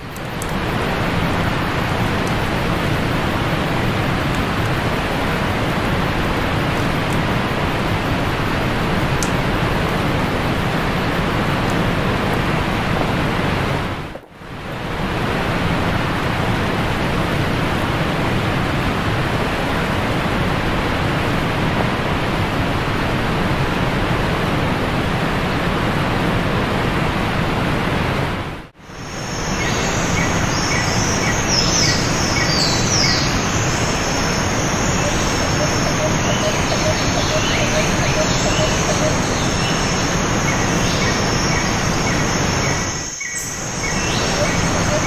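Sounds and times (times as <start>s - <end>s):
creek water rushing over rocks: 0.0s - 13.4s.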